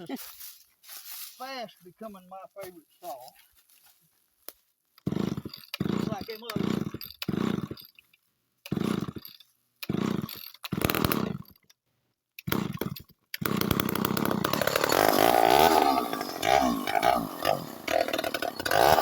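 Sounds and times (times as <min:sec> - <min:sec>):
chainsaw engine revving: 0:05.0 - 0:07.9, 0:08.7 - 0:11.5, 0:12.4 - 0:19.0
chainsaw pull-starting: 0:05.0 - 0:11.7, 0:12.4 - 0:19.0.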